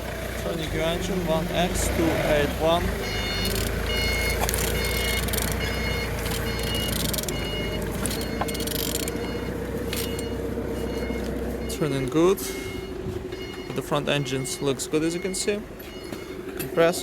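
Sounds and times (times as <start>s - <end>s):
turbine rotor spinning with whir: 1.6s - 11.7s.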